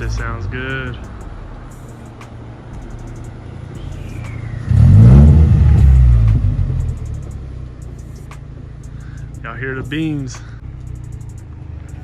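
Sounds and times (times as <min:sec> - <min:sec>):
pickup engine revving hard: 0:04.6 - 0:07.0.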